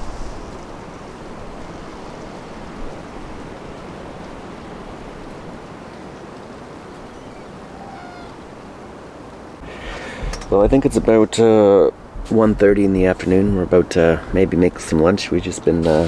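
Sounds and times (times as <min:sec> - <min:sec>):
strong wind rushing: 0:09.6 - 0:16.0.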